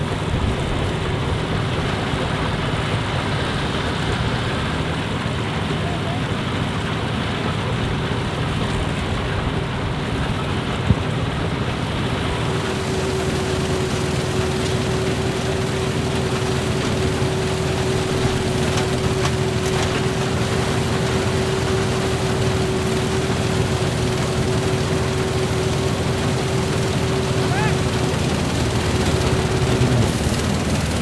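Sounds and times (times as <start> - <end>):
combine harvester running: 0.0 - 31.0
steady machine whine: 12.2 - 31.0.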